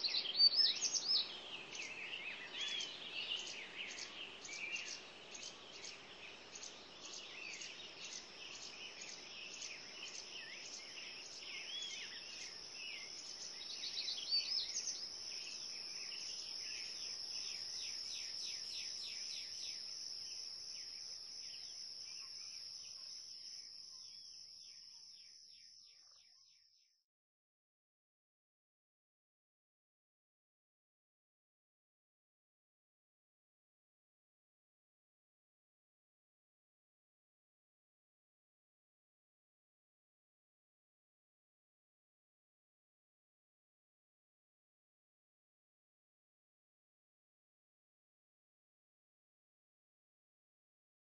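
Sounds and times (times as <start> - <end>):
birds chirping and trilling: 0.0 - 26.8.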